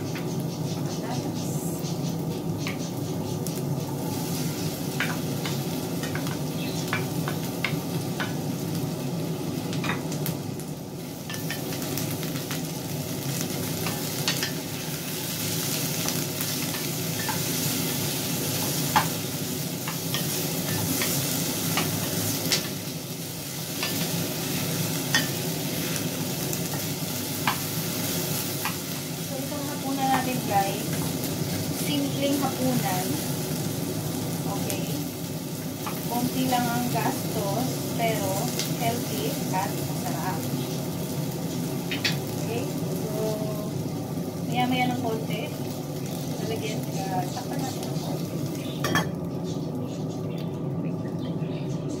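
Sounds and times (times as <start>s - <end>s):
potatoes sizzling in pan: 0.0s - 51.7s.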